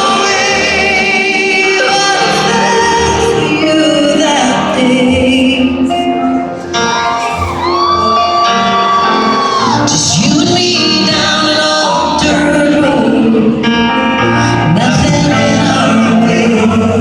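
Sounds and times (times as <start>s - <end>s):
live country band playing: 0.0s - 17.0s
audience shouting and whooping: 7.1s - 10.2s.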